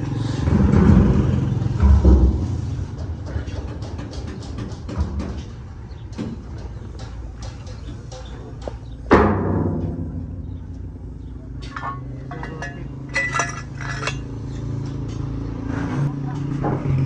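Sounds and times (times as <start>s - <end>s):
steady low hum: 7.6s - 15.0s
light metallic taps and clinks: 11.6s - 15.4s.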